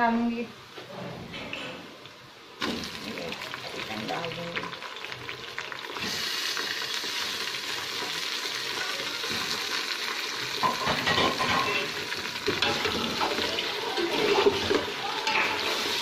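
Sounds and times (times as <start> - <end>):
chicken sizzling in hot oil: 2.6 - 16.0.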